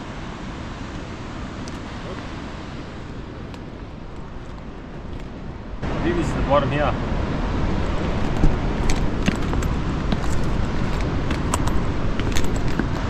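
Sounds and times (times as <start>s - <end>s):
light clicks and jingles: 8.2s - 13.0s.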